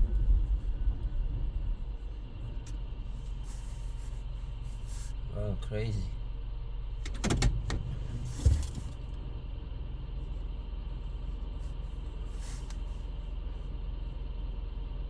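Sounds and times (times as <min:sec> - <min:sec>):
vehicle engine humming: 0:00.0 - 0:15.0
thump: 0:07.2 - 0:09.0.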